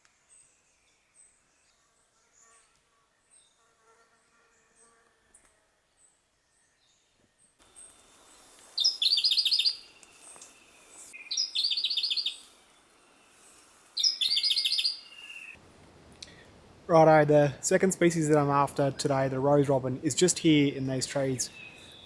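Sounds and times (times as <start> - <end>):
faint forest background: 0.0 - 22.0
songbird singing: 4.6 - 22.0.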